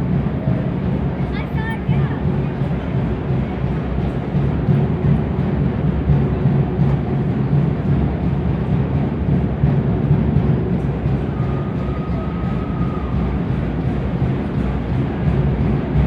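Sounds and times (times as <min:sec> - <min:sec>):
deep drums pounding: 0:00.0 - 0:16.0.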